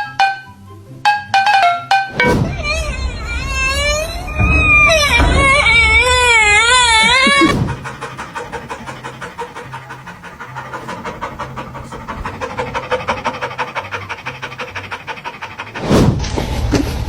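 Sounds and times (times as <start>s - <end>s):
loud rush of sound: 2.1s - 8.0s
dog panting: 2.4s - 16.6s.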